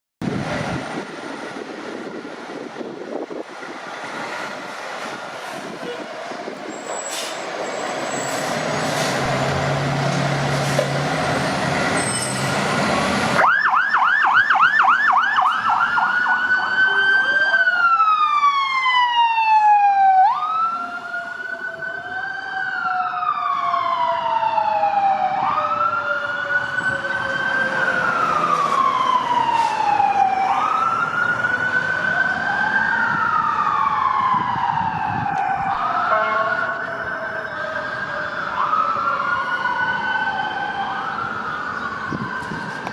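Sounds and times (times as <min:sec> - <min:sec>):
engine and road rumble: 0:00.2 - 0:42.9
lower siren gliding downward: 0:12.7 - 0:42.9
siren yelping and wailing: 0:13.4 - 0:42.9.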